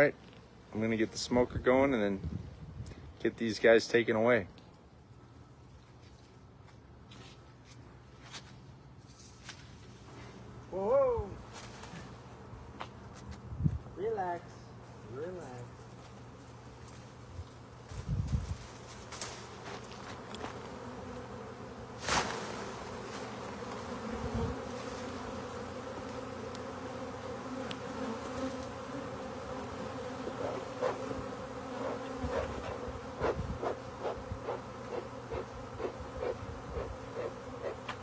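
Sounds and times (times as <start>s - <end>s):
bee swarm buzzing: 18.8s - 38.0s.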